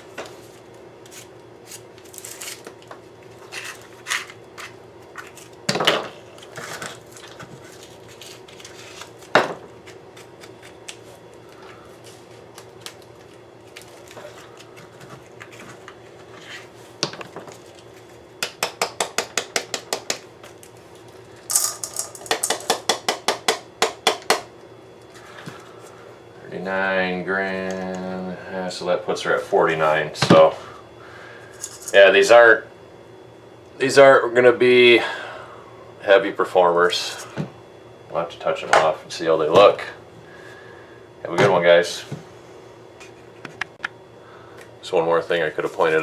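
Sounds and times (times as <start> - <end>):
small pieces clattering on a dish: 21.5 - 22.8.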